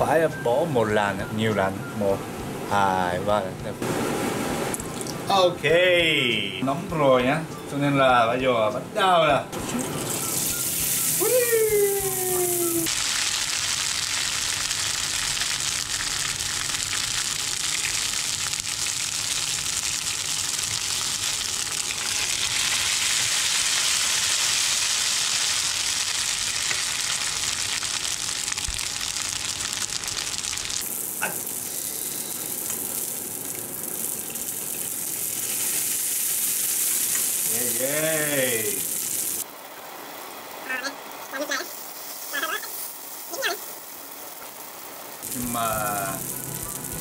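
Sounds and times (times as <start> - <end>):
noodles sizzling in hot oil: 9.6 - 47.0.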